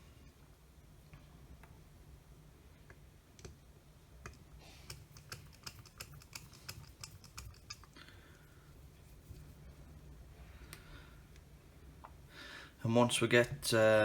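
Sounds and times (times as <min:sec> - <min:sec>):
small screwdriver clicking and tapping: 0:04.2 - 0:07.9.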